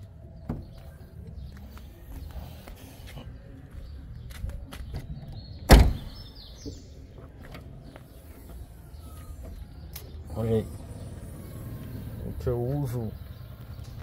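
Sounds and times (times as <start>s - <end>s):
car door shutting: 5.7s - 6.2s.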